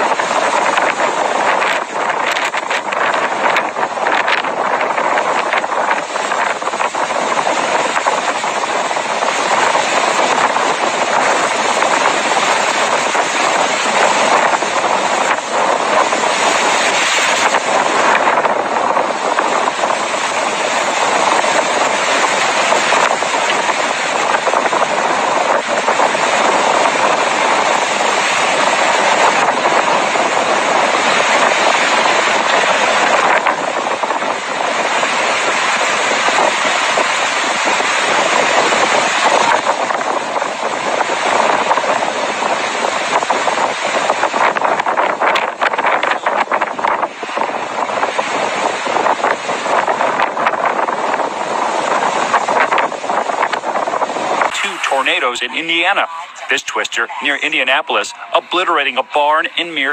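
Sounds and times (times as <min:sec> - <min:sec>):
wind buffeting microphone: 0:00.0 - 0:54.6
loud rushing wind: 0:00.0 - 0:59.1.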